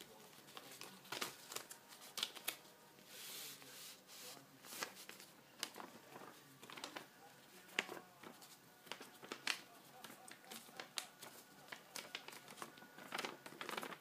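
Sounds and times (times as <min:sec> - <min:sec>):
paper taps and rustles: 0:00.0 - 0:02.7, 0:04.7 - 0:14.0.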